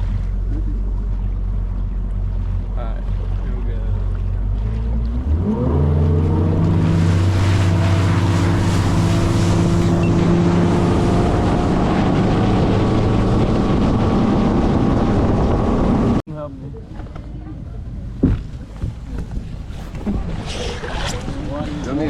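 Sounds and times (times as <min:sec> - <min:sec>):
outboard motor throttling up: 0:00.0 - 0:16.2
wind and water rushing: 0:00.0 - 0:16.2.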